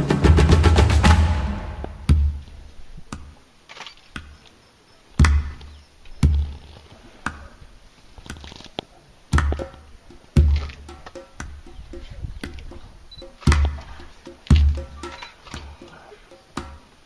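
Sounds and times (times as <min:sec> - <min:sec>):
heavy booming drum hits: 0:00.0 - 0:02.4.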